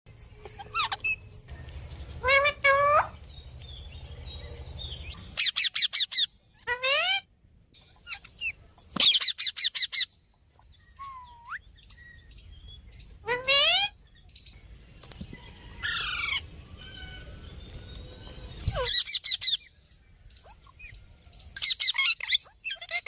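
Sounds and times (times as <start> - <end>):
parrot squawking and chirping: 0.4 - 1.4, 2.0 - 3.3, 5.0 - 14.3, 15.8 - 17.4, 18.5 - 19.8, 20.4 - 23.0.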